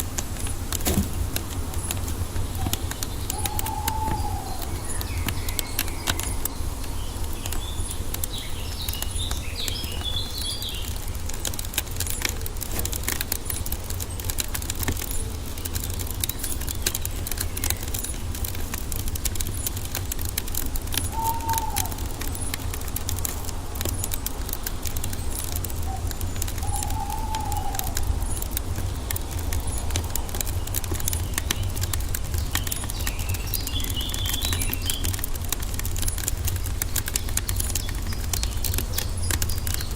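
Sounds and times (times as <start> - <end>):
birds chirping: 0.0 - 39.9
wood fire crackling: 0.0 - 39.9
whistled bird calls: 2.5 - 10.9, 21.0 - 22.5, 25.8 - 28.4.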